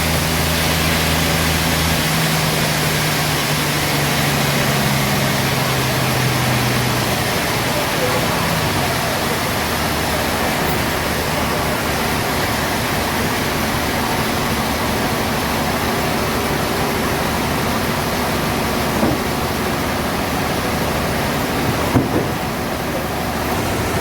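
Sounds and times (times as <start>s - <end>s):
sawmill machinery running: 0.0s - 24.0s
small knock: 19.0s - 19.2s, 21.9s - 22.4s.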